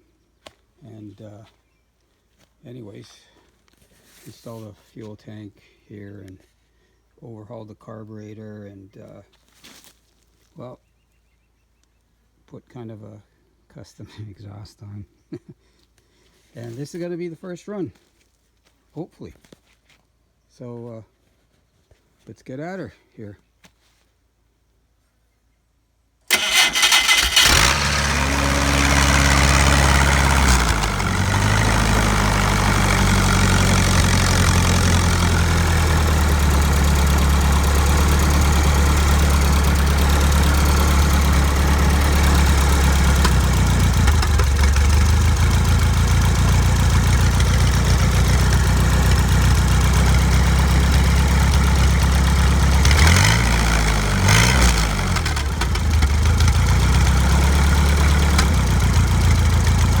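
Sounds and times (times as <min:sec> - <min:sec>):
forklift engine cranking and running: 0:26.3 - 1:00.0.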